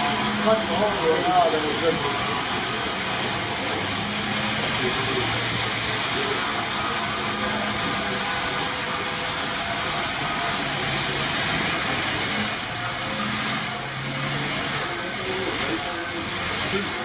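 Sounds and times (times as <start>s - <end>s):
hissing machinery with low hum: 0.0s - 17.0s.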